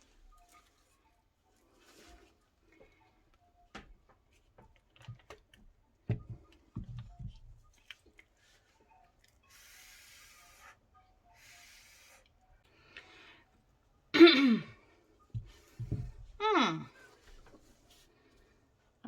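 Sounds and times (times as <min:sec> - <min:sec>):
light knocks and taps: 0:03.7 - 0:08.0, 0:15.3 - 0:16.4
soft low thumps: 0:15.3 - 0:16.5.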